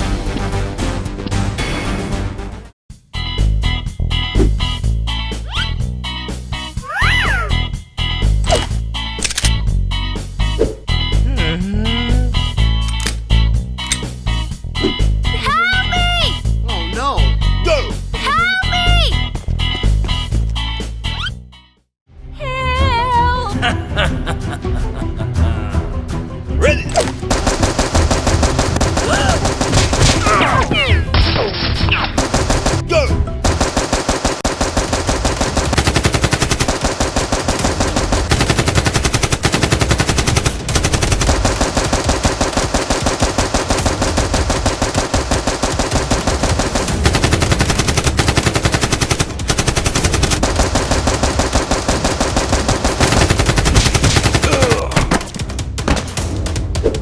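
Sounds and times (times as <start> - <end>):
rapid automatic gunfire: 27.3 - 30.4, 32.1 - 54.8.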